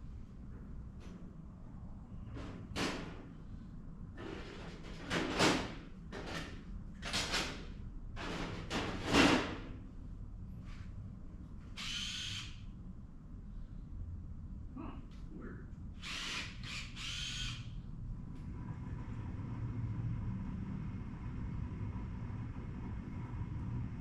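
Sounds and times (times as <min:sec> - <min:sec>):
brief whir: 0:11.8 - 0:12.6, 0:16.0 - 0:17.8.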